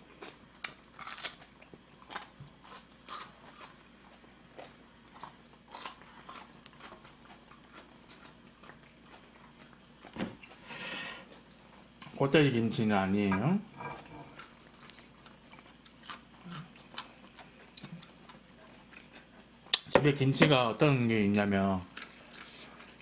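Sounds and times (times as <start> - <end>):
crunchy chewing: 0.0 - 12.2, 14.0 - 19.9, 21.8 - 23.0.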